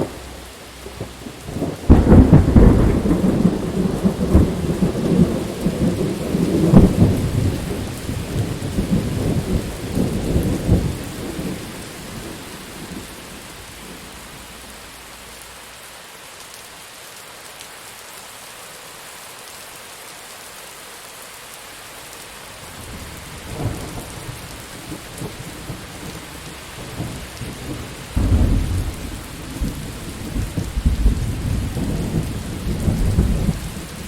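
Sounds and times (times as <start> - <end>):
thunder rolling: 0.0 - 15.4, 26.8 - 34.0
steady rain: 0.0 - 34.0.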